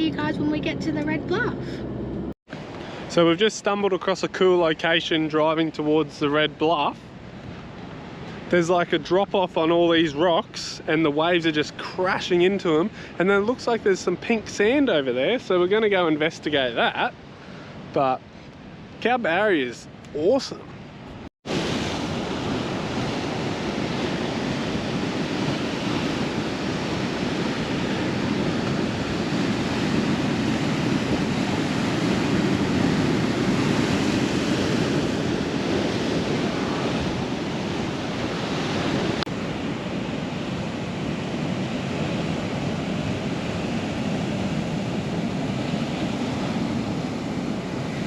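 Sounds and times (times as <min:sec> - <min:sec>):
wind buffeting microphone: 0:20.8 - 0:48.0.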